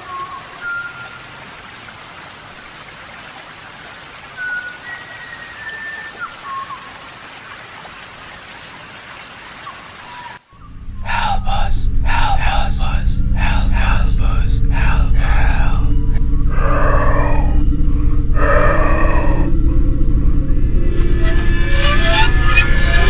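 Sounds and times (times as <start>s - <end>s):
steady rain: 0.0s - 10.6s.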